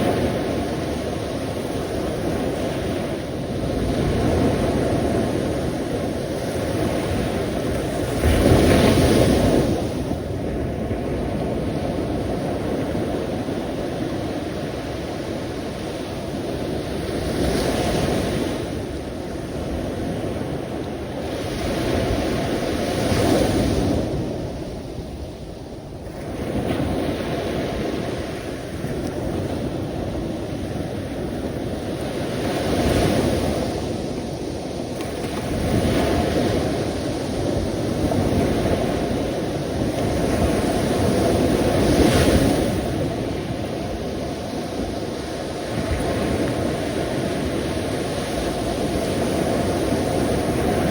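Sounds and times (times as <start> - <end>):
sea waves washing in: 0.0 - 50.9
ocean surf rushing: 29.6 - 50.9.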